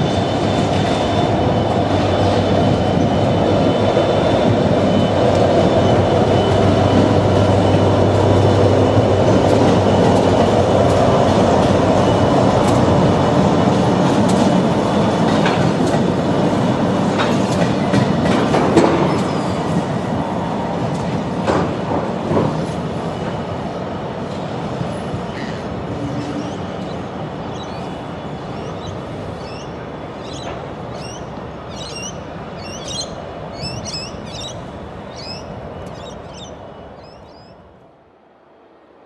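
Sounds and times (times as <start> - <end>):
freight train rumble: 0.0 - 39.0
small bird chirping: 26.4 - 37.6.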